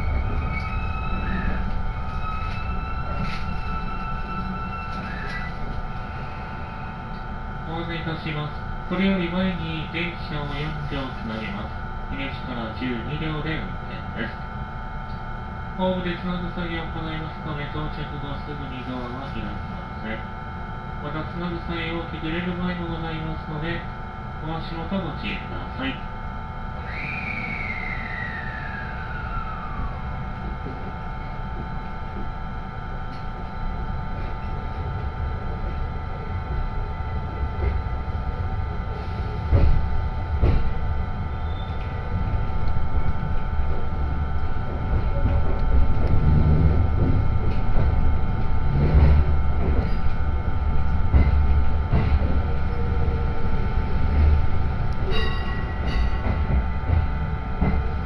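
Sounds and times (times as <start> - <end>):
train wheels rumbling on track: 0.0 - 6.0, 26.9 - 58.0
whine falling in pitch: 0.0 - 8.9, 26.4 - 58.0
electric whine: 0.0 - 58.0.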